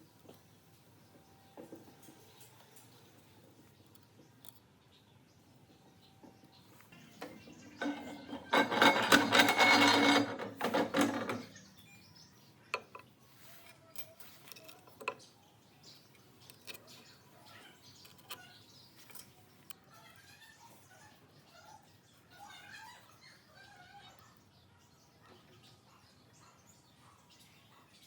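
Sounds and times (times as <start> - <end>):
workshop tool noise: 7.1 - 11.6
metal parts clicking and knocking: 7.2 - 11.6, 12.7 - 15.3, 17.9 - 19.8.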